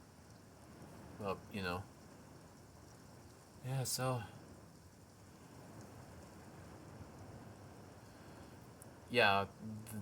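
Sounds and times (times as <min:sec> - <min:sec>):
faint rain hiss indoors: 0:00.0 - 0:10.0.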